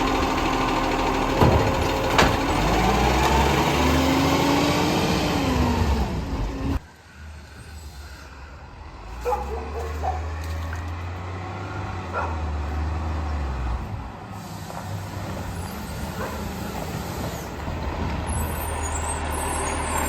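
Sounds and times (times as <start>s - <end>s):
truck engine idling: 0.0s - 4.6s
garbage truck engine whining: 0.0s - 6.8s, 10.8s - 20.0s.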